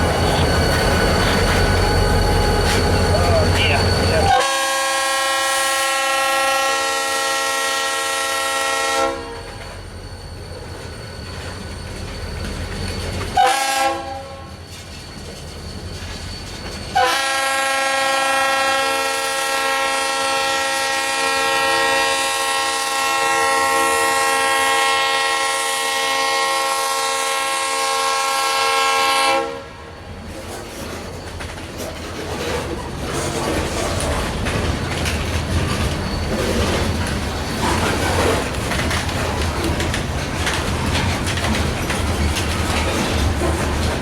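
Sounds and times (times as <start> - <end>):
low rumble of passing train: 0.0 - 44.0
locomotive air horn blasts: 4.3 - 9.5, 13.4 - 14.5, 17.0 - 29.8.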